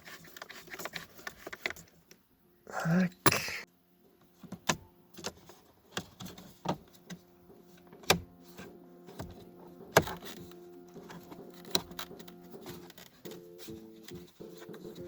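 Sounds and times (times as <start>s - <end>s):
faint steady hum: 0.1s - 15.0s.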